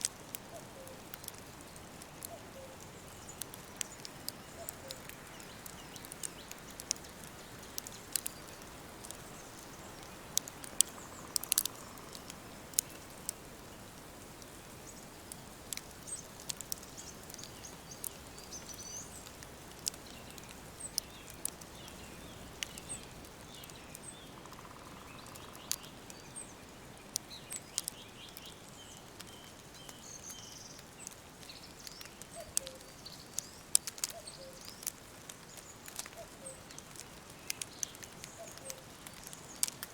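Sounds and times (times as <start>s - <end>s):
small birds chirping: 0.0s - 39.9s
wood fire crackling and popping: 0.0s - 39.9s.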